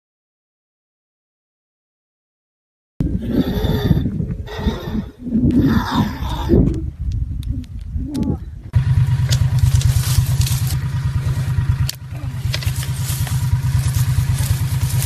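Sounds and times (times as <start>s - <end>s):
vehicle engine rumbling: 3.0s - 15.0s.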